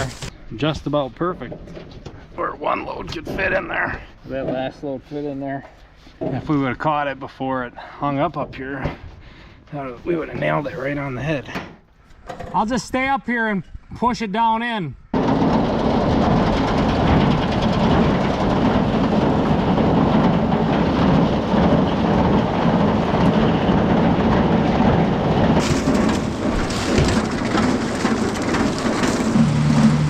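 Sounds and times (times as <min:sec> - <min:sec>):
corn clattering on a conveyor: 0:00.0 - 0:00.3, 0:15.2 - 0:30.0.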